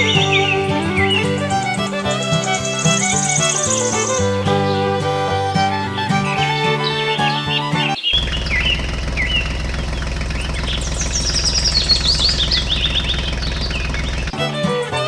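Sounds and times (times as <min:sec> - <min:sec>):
birds chirping: 0:00.0 - 0:15.0
violin music: 0:00.0 - 0:15.0
steady low hum: 0:08.2 - 0:14.3.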